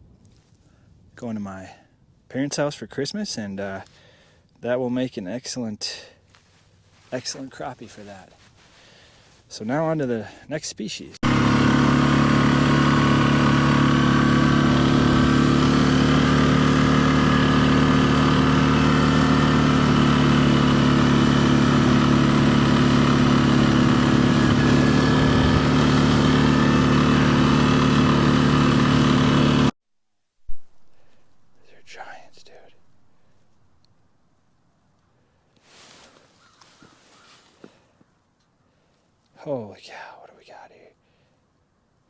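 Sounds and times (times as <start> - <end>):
small engine running: 11.2 - 29.7.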